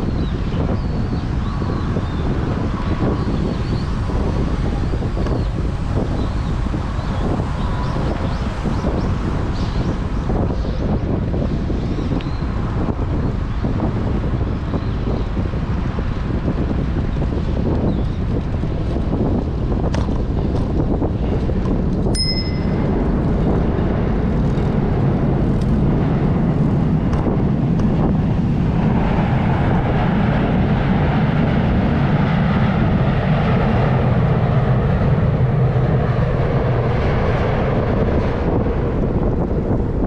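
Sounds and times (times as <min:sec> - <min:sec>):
wind buffeting microphone: 0:00.0 - 0:40.0
high ding: 0:22.1 - 0:22.9.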